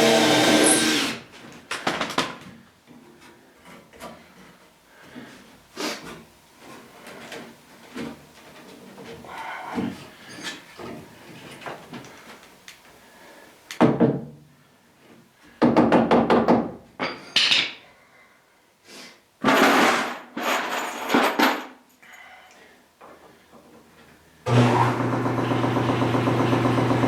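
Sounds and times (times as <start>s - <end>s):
power drill: 0.0s - 1.2s, 24.5s - 27.0s.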